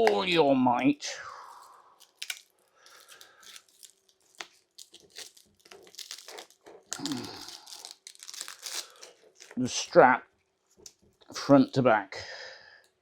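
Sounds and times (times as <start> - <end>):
velcro straps ripping: 2.0 - 9.6.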